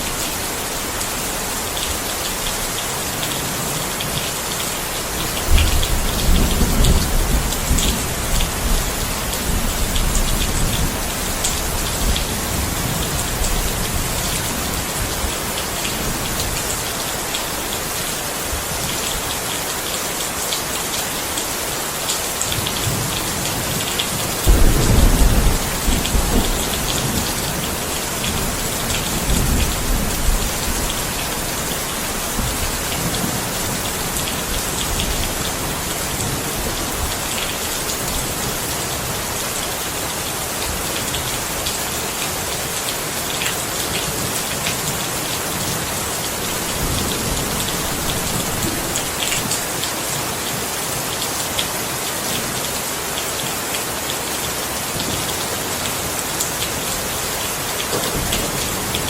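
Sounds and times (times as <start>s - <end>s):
steady rain: 0.0s - 59.0s
thunder rumbling: 24.4s - 37.1s.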